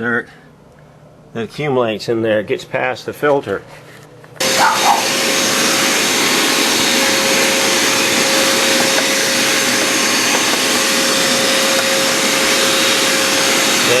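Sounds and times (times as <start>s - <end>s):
wet dry vacuum cleaner running: 4.4s - 14.0s.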